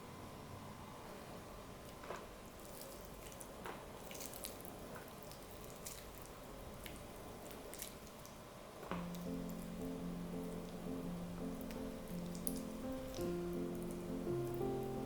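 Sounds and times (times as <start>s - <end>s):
soft wet squishes: 1.9s - 9.8s, 11.4s - 15.0s.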